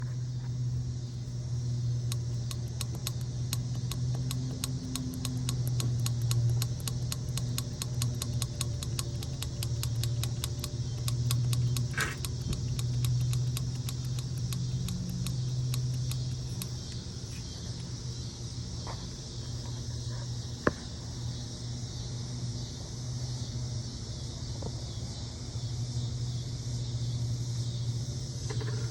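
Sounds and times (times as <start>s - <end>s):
rapid even ticking: 2.0s - 17.1s
car engine idling: 2.1s - 17.0s.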